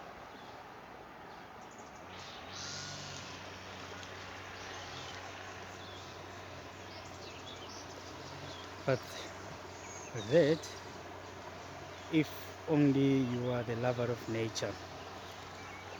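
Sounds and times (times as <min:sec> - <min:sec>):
background hiss: 0:00.0 - 0:15.9
steady low hum: 0:02.0 - 0:15.9
faint bird chirps: 0:04.5 - 0:15.9.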